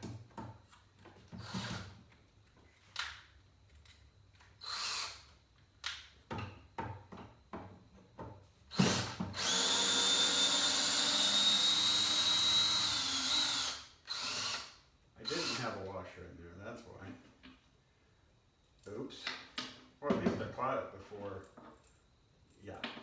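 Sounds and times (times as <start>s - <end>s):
power drill driving a screw: 1.4s - 1.9s, 4.6s - 5.3s, 8.7s - 15.7s.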